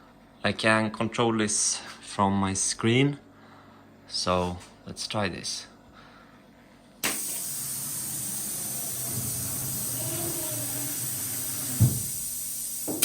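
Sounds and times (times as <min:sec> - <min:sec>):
compressed air hissing: 0:07.0 - 0:13.0
short thump: 0:11.8 - 0:12.1.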